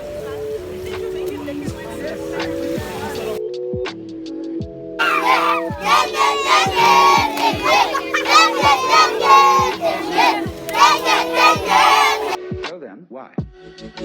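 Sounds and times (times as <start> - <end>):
group of voices shouting: 5.0 - 12.4.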